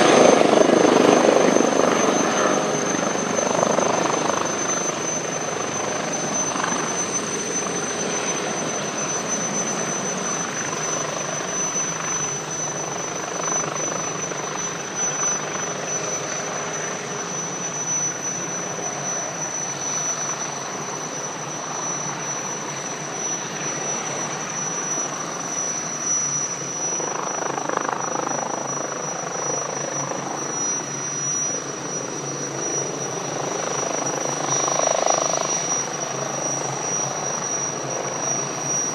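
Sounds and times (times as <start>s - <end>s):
helicopter running: 0.0s - 38.9s.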